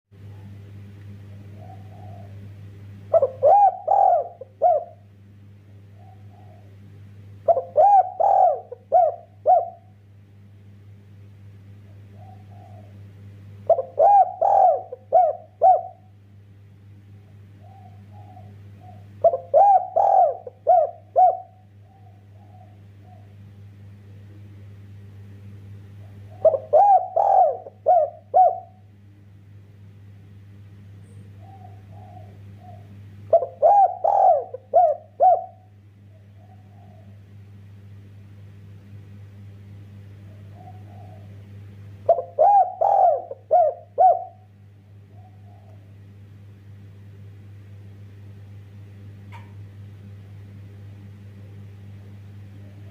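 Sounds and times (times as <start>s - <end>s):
steady low hum: 0.1s - 52.9s
dove cooing: 1.3s - 5.1s, 5.9s - 10.0s, 11.9s - 16.1s, 17.5s - 23.4s, 26.0s - 28.9s, 31.3s - 37.4s, 40.2s - 46.0s.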